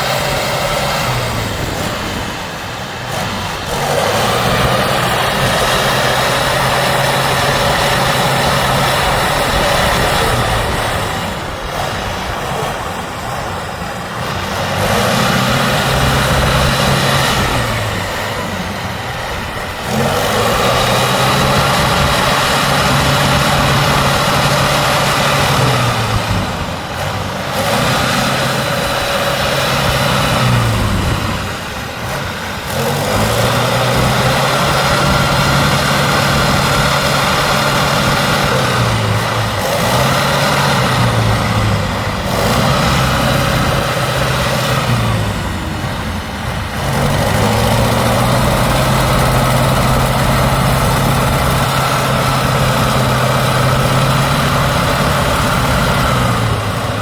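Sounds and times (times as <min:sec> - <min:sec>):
diesel truck engine revving: 0:00.0 - 0:57.0.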